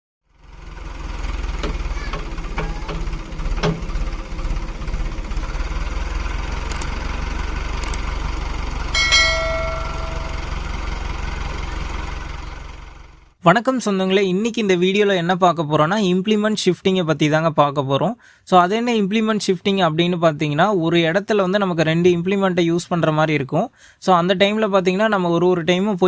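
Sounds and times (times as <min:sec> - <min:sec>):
tractor diesel engine running: 0:00.2 - 0:13.4
ringing metal clang: 0:09.0 - 0:10.8
metallic clanks: 0:09.0 - 0:10.9.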